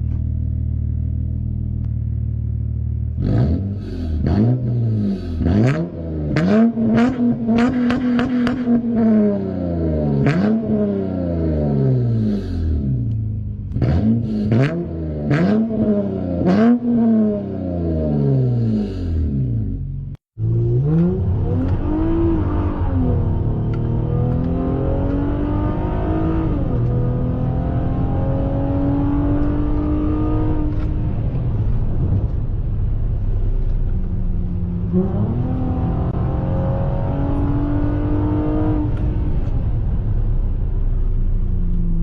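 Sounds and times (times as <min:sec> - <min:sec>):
loud car engine revving: 0:03.1 - 0:32.4, 0:34.3 - 0:40.1.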